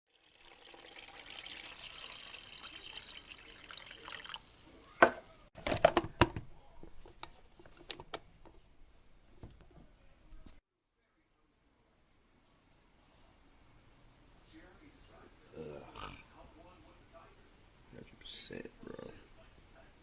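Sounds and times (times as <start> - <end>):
water sounds: 0.1 - 5.5.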